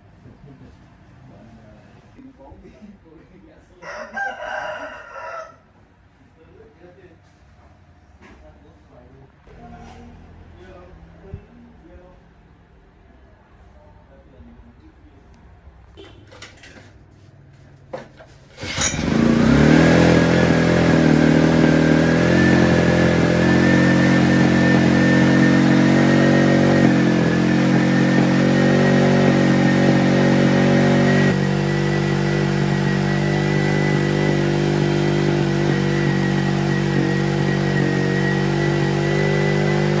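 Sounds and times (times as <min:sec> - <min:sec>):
generator engine running: 0:18.6 - 0:40.0.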